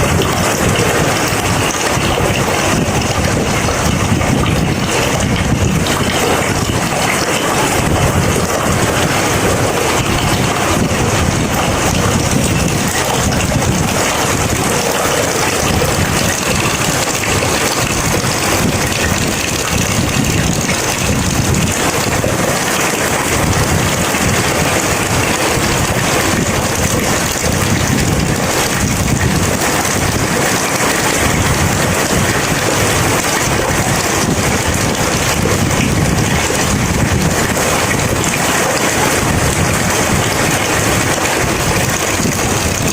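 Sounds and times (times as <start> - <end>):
heavy rain falling: 0.0 - 42.9.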